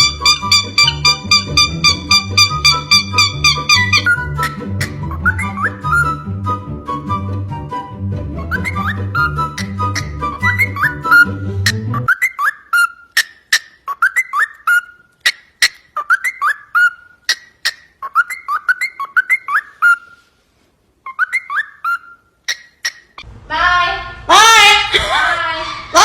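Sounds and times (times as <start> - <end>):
parrot whistling: 0.0 - 20.3, 21.0 - 23.2.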